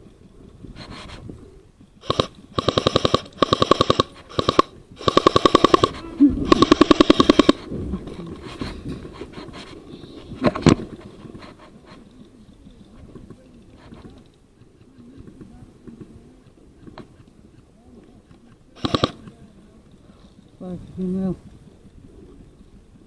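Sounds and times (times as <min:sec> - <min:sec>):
airsoft guns firing full-auto: 0:02.0 - 0:07.7, 0:18.8 - 0:19.4
sharp crack: 0:02.0 - 0:11.0.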